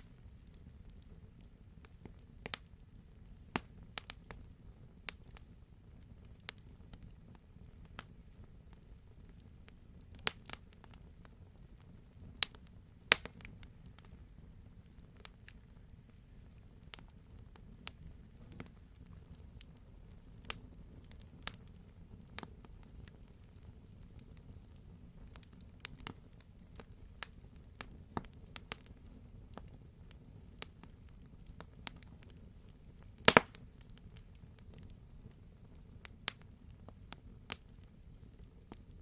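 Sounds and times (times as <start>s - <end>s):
campfire crackling: 0.0s - 39.0s
low rumble of burning logs: 0.0s - 39.0s
sharp pops of fire: 1.8s - 2.8s, 3.5s - 4.4s, 10.1s - 11.2s, 12.3s - 39.0s.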